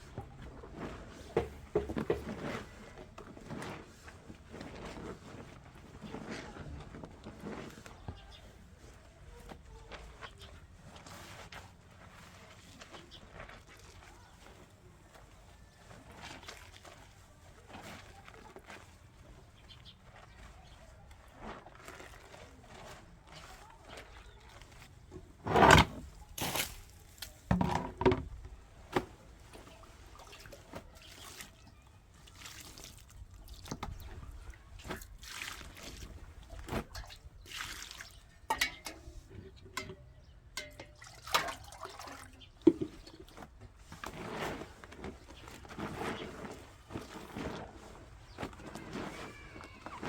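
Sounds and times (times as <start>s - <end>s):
wet liquid sounds: 15.7s - 19.2s, 20.0s - 25.0s, 29.4s - 38.8s, 40.7s - 50.0s
tools knocking and clattering: 27.5s - 28.3s.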